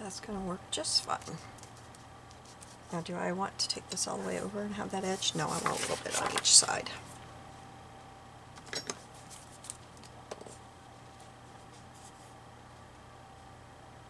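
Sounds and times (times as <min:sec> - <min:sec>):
steady low hum: 0:00.0 - 0:14.0
paper rustling: 0:05.0 - 0:07.3, 0:09.1 - 0:12.3.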